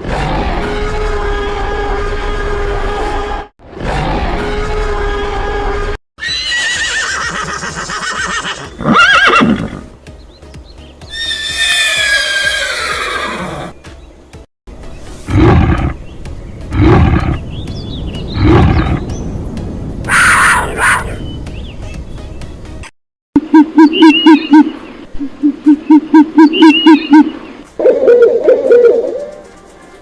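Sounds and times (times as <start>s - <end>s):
horse neighing: 6.2s - 9.9s, 11.1s - 13.8s.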